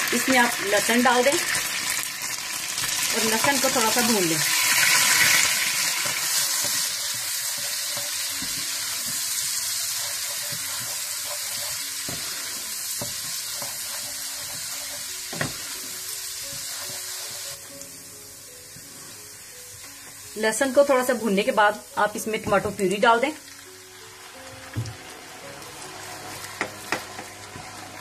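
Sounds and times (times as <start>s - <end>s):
garlic sizzling in butter: 0.0s - 28.0s
wooden spatula knocking on pan: 15.3s - 15.7s, 26.6s - 27.4s.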